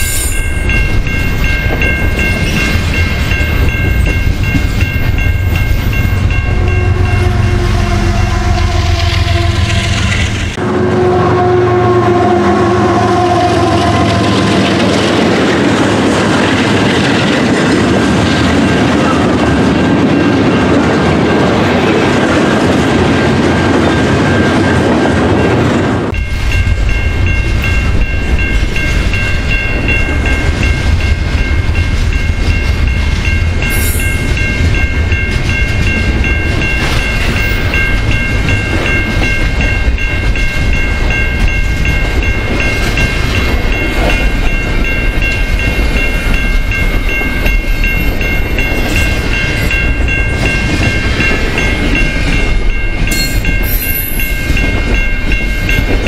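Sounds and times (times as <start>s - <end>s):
high-pitched ring: 0.0s - 10.4s, 26.1s - 56.0s
freight train wheels rumbling: 0.0s - 56.0s.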